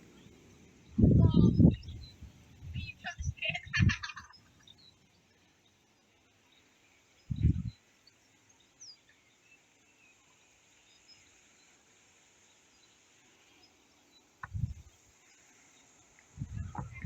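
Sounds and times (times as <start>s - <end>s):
wind buffeting microphone: 0.0s - 4.3s, 7.3s - 7.8s, 14.4s - 15.0s, 16.3s - 17.0s
faint bird chirps: 0.0s - 17.0s.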